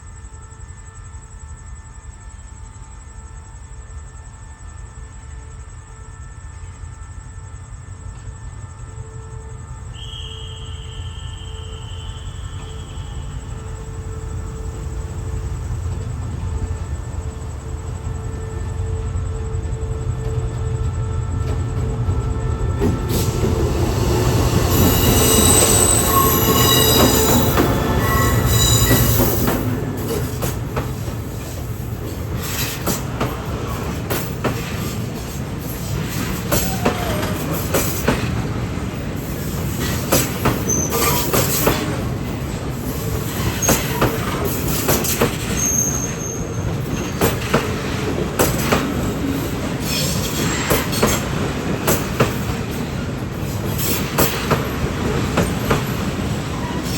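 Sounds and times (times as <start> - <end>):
heavy train rumble: 0.0 - 56.9
train wheels squealing: 6.3 - 56.9
wheels clacking over rail joints: 24.5 - 56.9.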